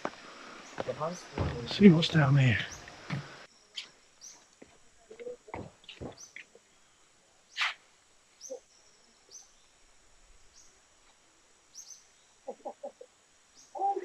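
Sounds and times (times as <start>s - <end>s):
soft footsteps on trail: 0.0s - 6.6s.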